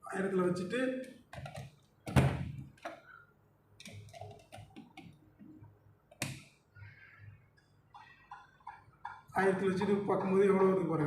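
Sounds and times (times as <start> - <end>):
faint clicks and taps: 3.8 - 6.6.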